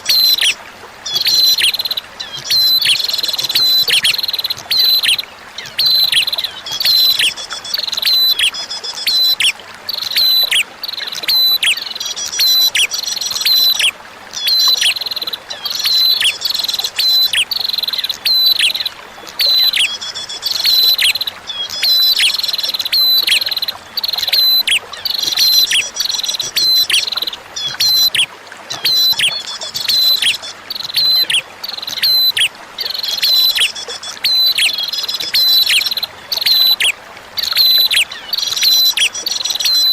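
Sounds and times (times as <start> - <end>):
faint flowing water: 0.0 - 39.9
bird singing high chirps: 15.7 - 17.4, 18.1 - 39.9.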